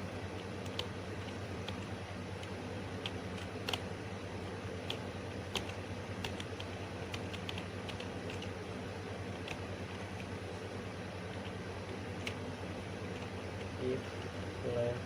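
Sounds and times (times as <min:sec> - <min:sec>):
steady low hum: 0:00.0 - 0:15.0
computer keys clicking: 0:00.4 - 0:03.9, 0:04.8 - 0:08.6, 0:09.3 - 0:10.3, 0:11.3 - 0:12.4.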